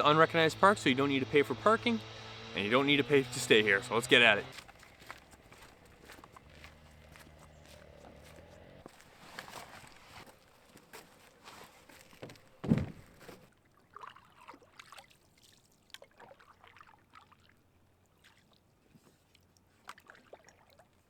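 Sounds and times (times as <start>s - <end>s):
water splashes and drips: 4.5s - 7.1s, 13.5s - 21.0s
hollow knock on canoe hull: 12.3s - 13.4s.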